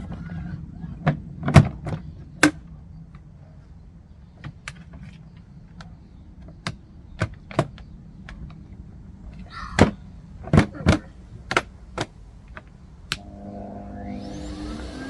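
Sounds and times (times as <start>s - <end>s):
low steady hum: 12.2s - 15.0s.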